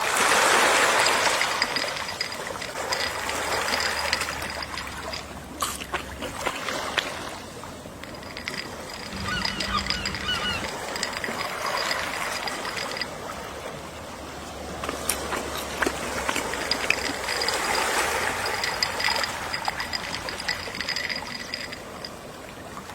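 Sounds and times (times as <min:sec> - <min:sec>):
ocean waves washing: 0:00.0 - 0:22.9
seagull calls: 0:09.1 - 0:11.3.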